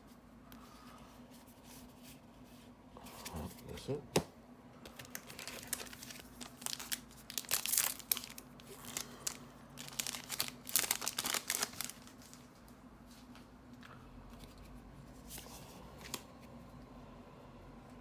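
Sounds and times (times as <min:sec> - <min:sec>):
foil wrapper tearing and crinkling: 0:04.9 - 0:12.4.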